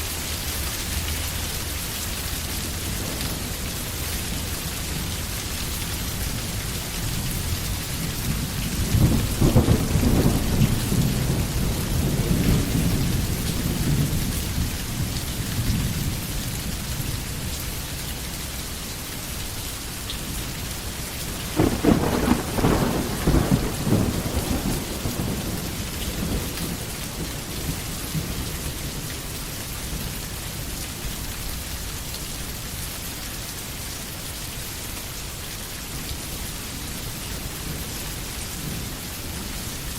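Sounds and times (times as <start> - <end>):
steady rain falling: 0.0 - 39.9
thunder rumbling: 6.4 - 16.3, 21.3 - 28.7.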